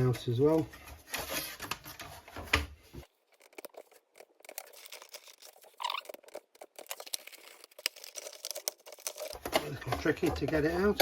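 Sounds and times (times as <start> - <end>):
plywood clicks and crackles: 0.0 - 11.0
wood squeaking: 5.7 - 6.4.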